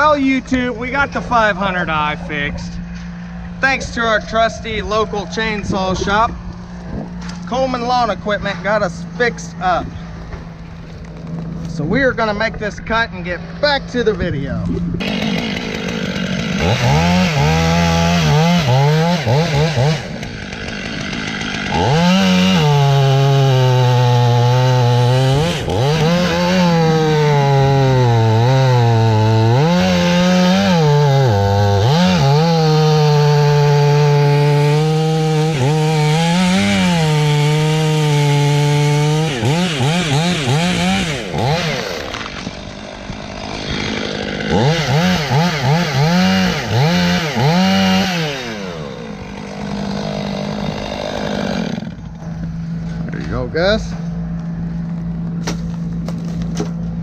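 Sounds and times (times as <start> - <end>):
chainsaw cutting wood: 14.9 - 53.3, 54.1 - 57.0.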